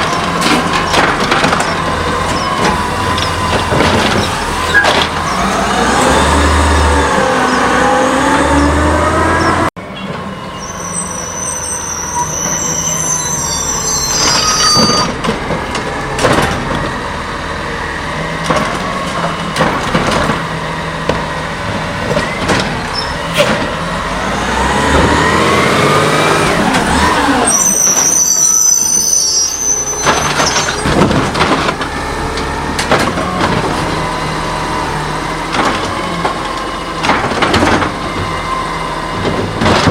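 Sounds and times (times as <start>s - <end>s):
metal clanks and knocks: 0.0s - 5.3s, 14.8s - 17.0s, 30.0s - 34.0s, 35.5s - 38.3s, 39.2s - 39.9s
hydraulics whining: 0.0s - 39.9s
high-pitched squeals and hisses: 10.5s - 15.2s, 27.4s - 30.8s.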